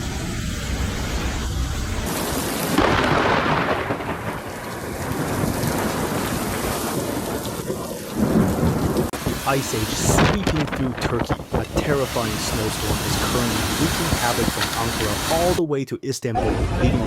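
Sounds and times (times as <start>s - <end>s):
deep rumble: 0.0s - 6.4s
heavy rain: 0.0s - 15.6s.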